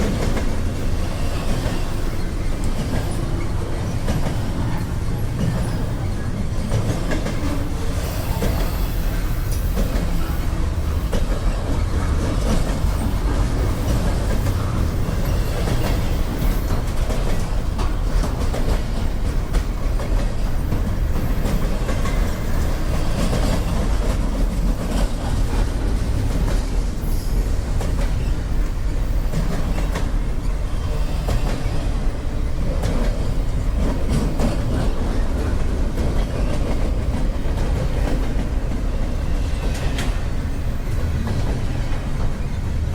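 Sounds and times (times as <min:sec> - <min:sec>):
freight train rumbling: 0:00.0 - 0:42.9
train wheels clicking on rails: 0:00.0 - 0:42.9.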